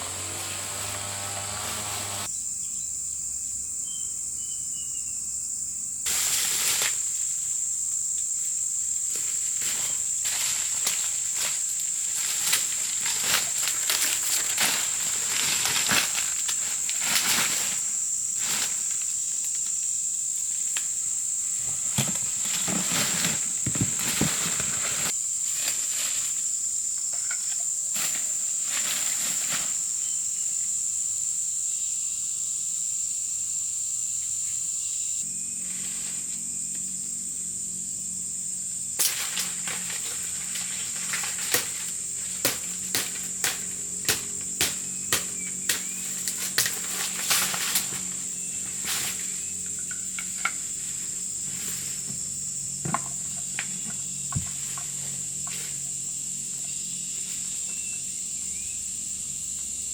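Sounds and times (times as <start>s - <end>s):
high-pitched insect drone: 25.1s - 59.9s.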